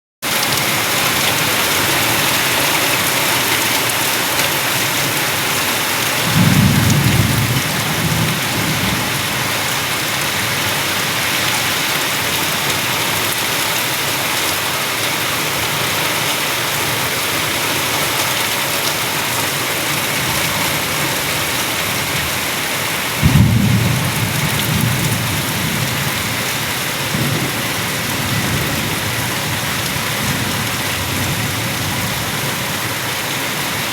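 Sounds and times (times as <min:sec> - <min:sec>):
heavy rain hissing: 0:00.2 - 0:33.9
thunder rumble: 0:06.2 - 0:11.3, 0:23.2 - 0:32.5.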